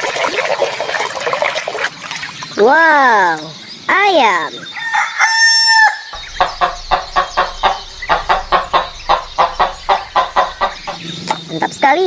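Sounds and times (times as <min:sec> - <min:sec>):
rooster crowing: 0:04.7 - 0:11.0
chicken clucking: 0:04.8 - 0:11.5.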